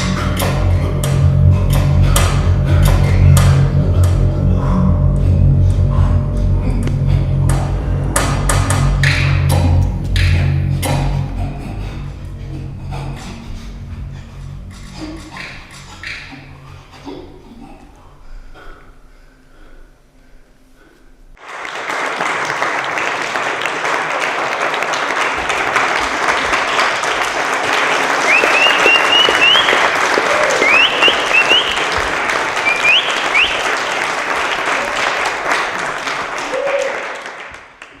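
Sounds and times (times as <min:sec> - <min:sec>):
crowd applauding: 0:21.4 - 0:38.0
short upward whistles: 0:28.2 - 0:32.0, 0:32.6 - 0:33.9.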